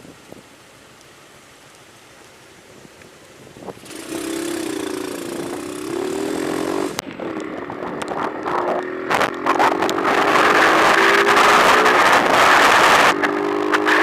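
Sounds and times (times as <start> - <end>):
small engine running: 3.8 - 7.0.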